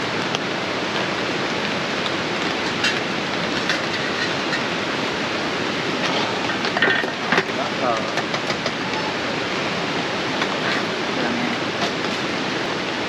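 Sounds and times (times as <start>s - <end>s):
fast-flowing river rushing: 0.0s - 13.0s.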